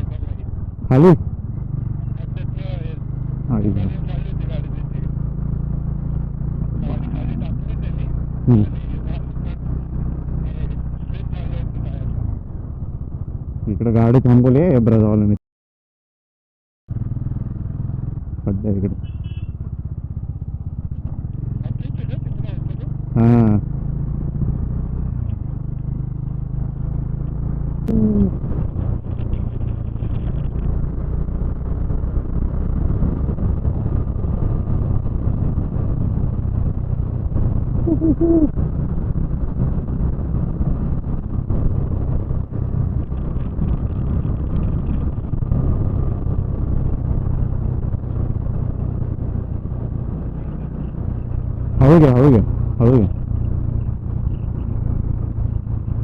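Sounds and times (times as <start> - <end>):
motorcycle engine droning: 0.0 - 15.4, 16.9 - 56.0
wind noise: 24.1 - 56.0.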